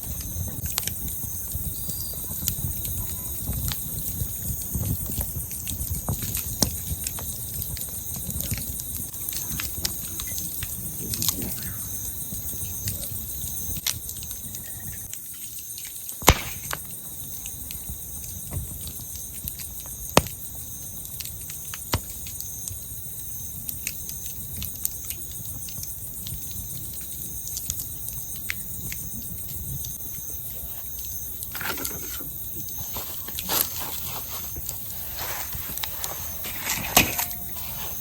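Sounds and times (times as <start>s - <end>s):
campfire crackling and popping: 0.0s - 38.0s
crickets chirping: 0.0s - 38.0s
flames rumbling: 0.0s - 38.0s.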